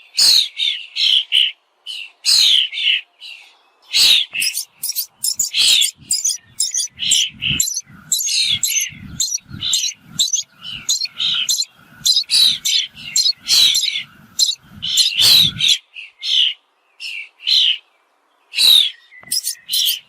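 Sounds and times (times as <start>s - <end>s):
bird calling: 4.0s - 15.8s, 18.6s - 20.0s.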